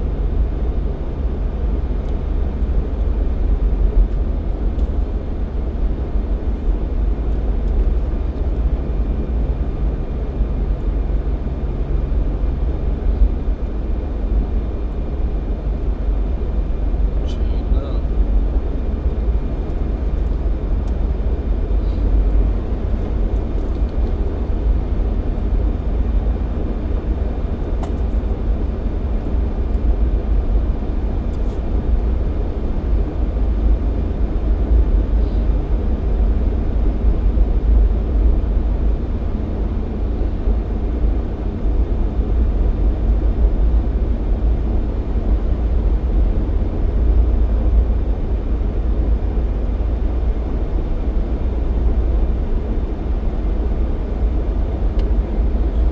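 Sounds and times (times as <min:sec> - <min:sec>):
car engine and road rumble: 0:00.0 - 0:55.9.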